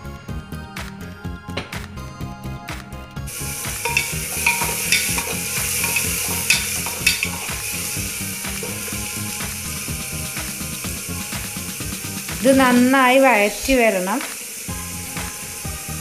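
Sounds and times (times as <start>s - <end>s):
quiet background music: 0.0s - 16.0s
onion sizzling in oil: 3.2s - 16.0s
spatula scraping and knocking pot: 3.5s - 7.9s.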